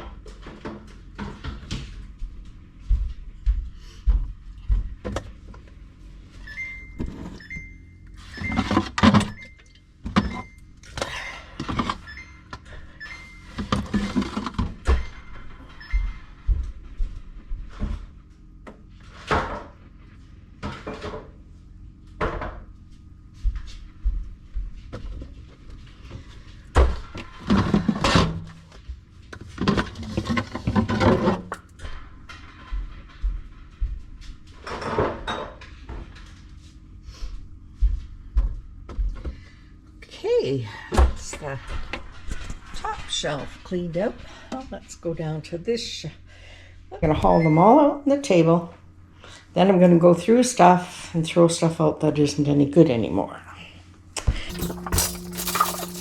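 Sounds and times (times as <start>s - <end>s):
jars knocking and clattering: 54.5s - 56.0s
packaging rustling: 54.5s - 56.0s.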